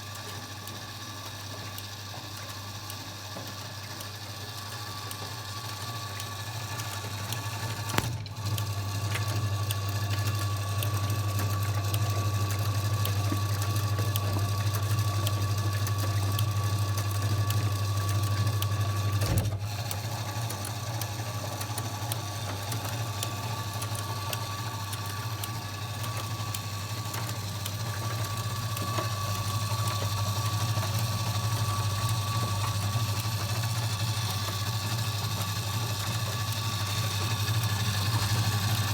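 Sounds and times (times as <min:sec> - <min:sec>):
washing machine humming: 0:04.5 - 0:38.9
sharp click: 0:07.9 - 0:08.3, 0:19.2 - 0:19.6.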